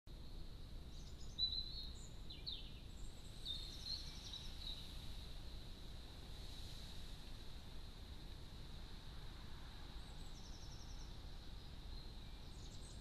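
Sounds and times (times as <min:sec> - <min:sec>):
outdoor background noise: 0:00.1 - 0:13.0
songbird twittering: 0:00.2 - 0:05.2, 0:09.9 - 0:13.0.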